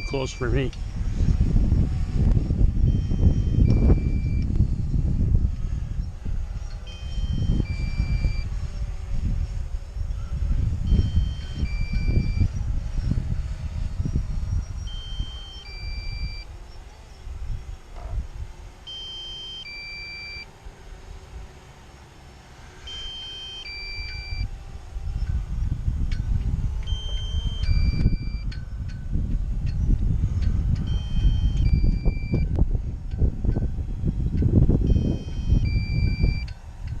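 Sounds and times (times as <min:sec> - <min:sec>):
two-tone electronic warning beep: 0:00.0 - 0:00.6, 0:02.8 - 0:04.5, 0:06.9 - 0:08.5, 0:10.9 - 0:12.5, 0:14.7 - 0:16.5, 0:18.9 - 0:20.5, 0:22.9 - 0:24.5, 0:26.8 - 0:28.6, 0:30.8 - 0:32.5, 0:34.8 - 0:36.5
wind rumbling on microphone: 0:00.0 - 0:37.0.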